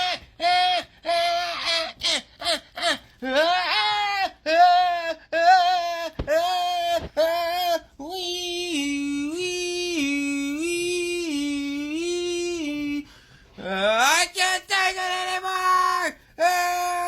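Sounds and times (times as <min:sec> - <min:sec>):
high-pitched voice crying: 0:00.0 - 0:08.6.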